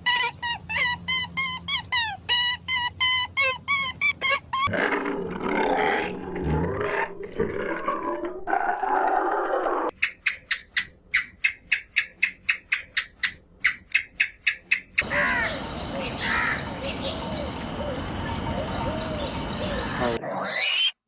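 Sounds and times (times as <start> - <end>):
faint chirps: 15.0 - 20.2
steady hiss: 15.0 - 20.2
bird harsh calls: 15.0 - 21.0.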